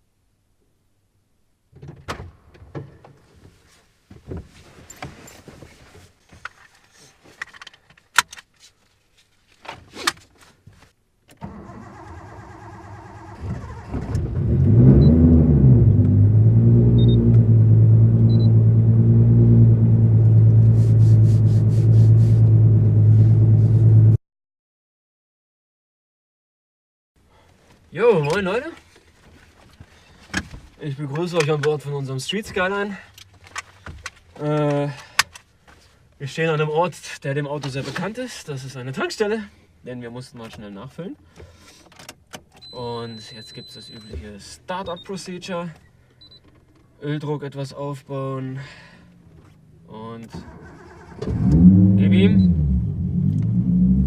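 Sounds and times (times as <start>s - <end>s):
car engine cranking and idling: 11.3s - 24.1s, 47.9s - 54.0s
low hum: 14.4s - 24.2s.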